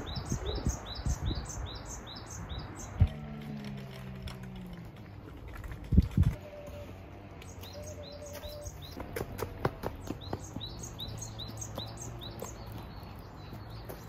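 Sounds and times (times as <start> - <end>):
songbird chirping: 0.0 - 5.4, 6.4 - 14.0.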